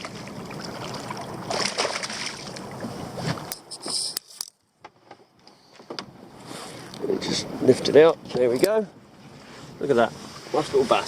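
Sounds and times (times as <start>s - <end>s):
water slapping boat hull: 0.0s - 3.9s.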